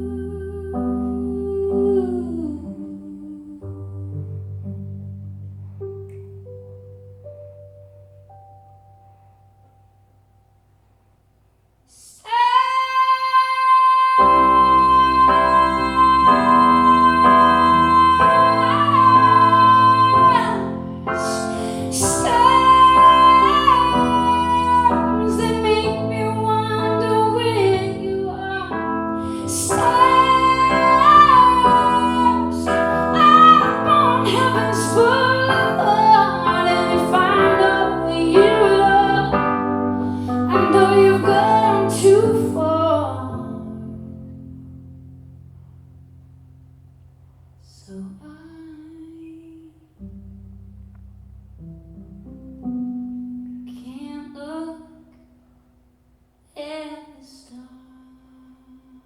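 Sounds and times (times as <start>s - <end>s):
woman singing a ballad: 0.0s - 4.3s, 11.9s - 44.2s, 47.7s - 50.0s, 53.6s - 55.2s, 56.5s - 59.0s
piano: 0.0s - 59.0s.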